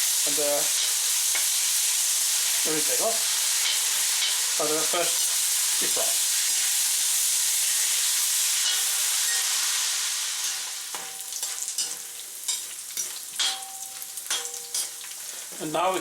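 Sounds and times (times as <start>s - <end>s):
pork sizzling in hot oil: 0.0s - 16.0s
utensil clicking and scraping wok: 0.7s - 2.4s, 3.3s - 4.6s, 8.5s - 9.6s, 10.4s - 15.2s.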